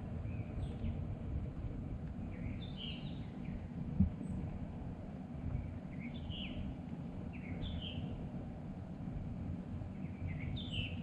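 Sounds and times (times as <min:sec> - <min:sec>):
steady low rumble: 0:00.0 - 0:11.0
small bird chirping: 0:10.0 - 0:11.0.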